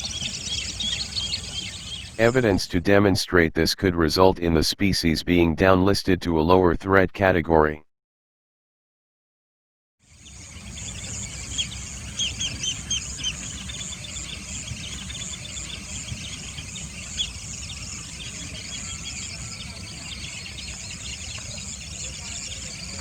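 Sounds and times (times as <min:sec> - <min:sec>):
small birds chirping: 0:00.0 - 0:02.2, 0:10.1 - 0:23.0.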